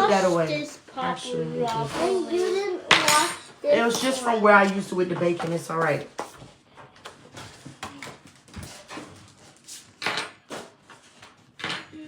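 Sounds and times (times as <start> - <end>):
dishes and utensils clinking: 1.7 - 5.7, 11.5 - 12.0.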